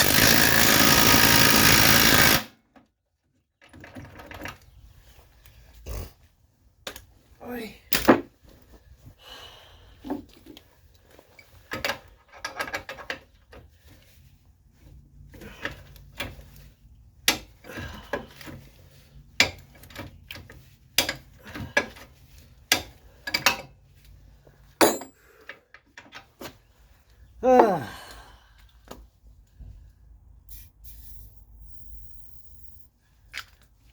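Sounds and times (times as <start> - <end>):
sharp metal clanks: 24.8 - 25.2.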